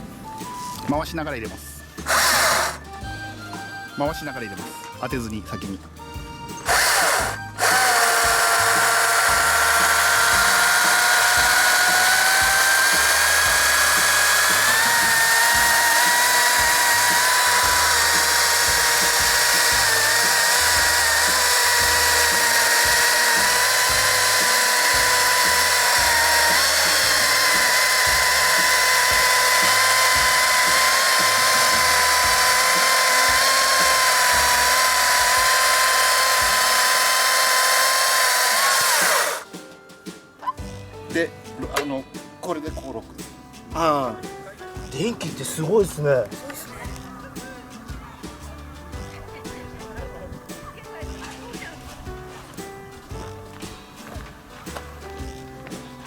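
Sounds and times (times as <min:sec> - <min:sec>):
electric chainsaw cutting: 0:02.0 - 0:03.1, 0:06.6 - 0:39.5.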